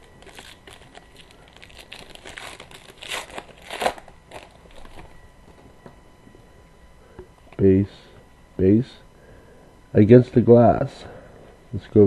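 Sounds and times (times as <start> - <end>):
trading cards rustling: 0.0 - 5.1.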